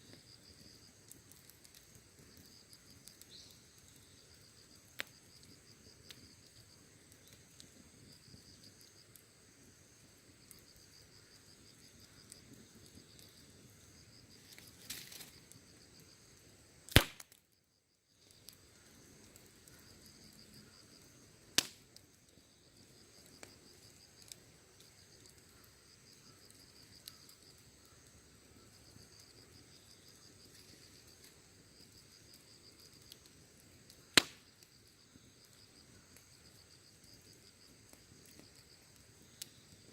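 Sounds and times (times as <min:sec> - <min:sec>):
crickets chirring: 0:00.0 - 0:39.9
wood fire crackling: 0:00.0 - 0:39.9
sharp loud pops: 0:16.9 - 0:17.4, 0:34.2 - 0:34.4.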